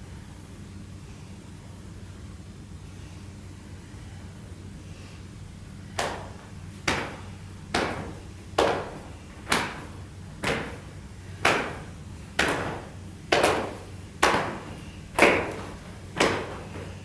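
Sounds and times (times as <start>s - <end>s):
sharp knocks: 6.0s - 17.0s.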